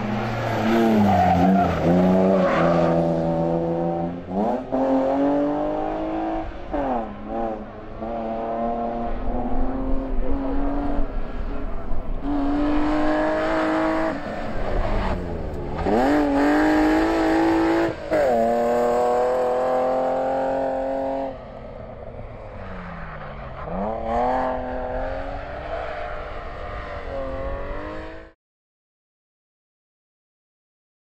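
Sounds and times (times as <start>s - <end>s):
rally car engine revving: 0.0s - 21.5s, 22.4s - 28.4s.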